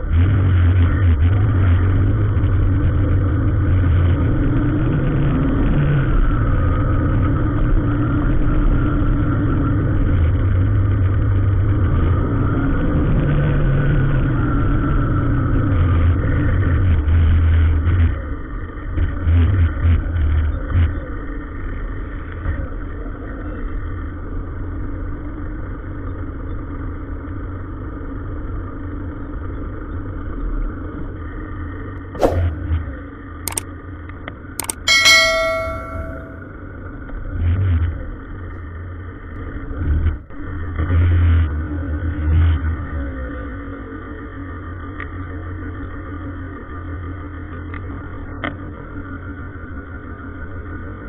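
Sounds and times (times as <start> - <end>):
sharp metallic clang: 32.2 - 32.6, 34.6 - 36.4.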